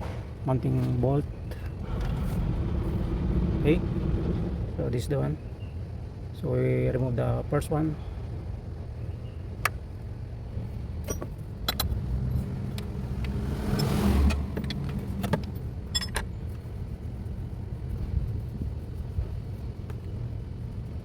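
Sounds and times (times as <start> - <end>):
steady low hum: 0.0 - 21.0
metallic tool clicks and clinks: 14.6 - 16.3.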